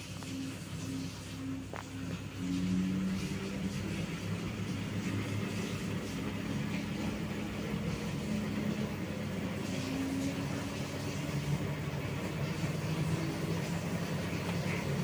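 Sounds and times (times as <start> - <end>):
washing machine spin hum: 0.0 - 15.0.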